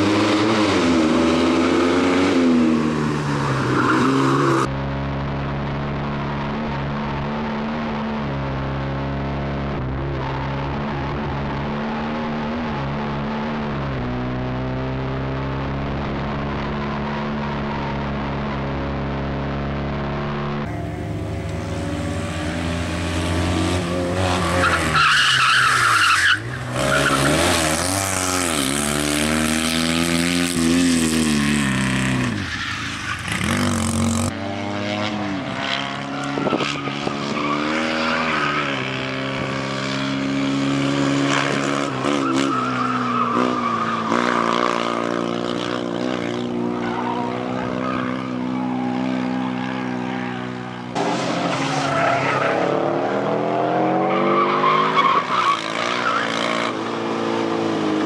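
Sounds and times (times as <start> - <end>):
car engine revving: 0.0 - 58.0
tyre squeal: 24.2 - 27.9, 41.9 - 44.7, 53.7 - 56.7.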